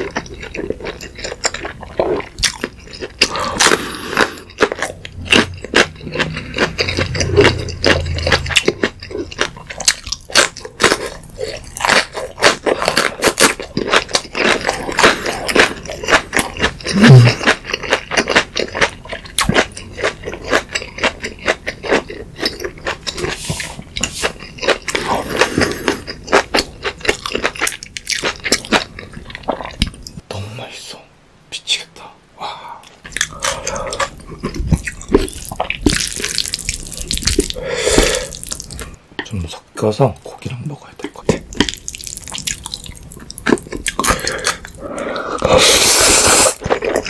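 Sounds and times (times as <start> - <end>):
chewing crisp crunches: 0.0 - 30.2, 33.1 - 39.0, 41.0 - 47.0.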